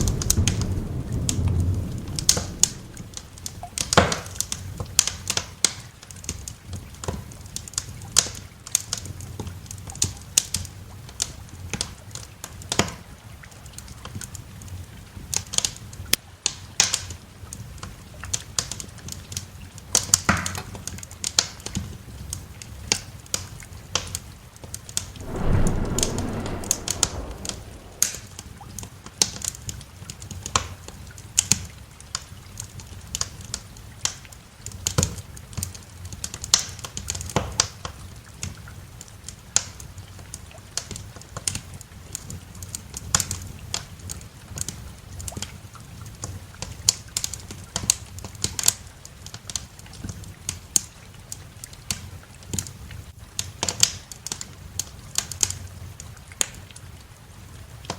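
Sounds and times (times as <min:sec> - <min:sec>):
wood fire crackling: 0:00.0 - 0:03.5, 0:25.2 - 0:28.3
low roll of thunder: 0:00.0 - 0:03.8, 0:25.2 - 0:28.6.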